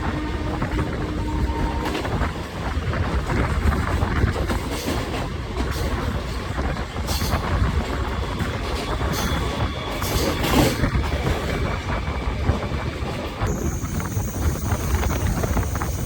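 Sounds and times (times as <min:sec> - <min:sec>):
train wheels rumbling on rails: 0:00.0 - 0:16.0
rail clicks: 0:13.5 - 0:16.0.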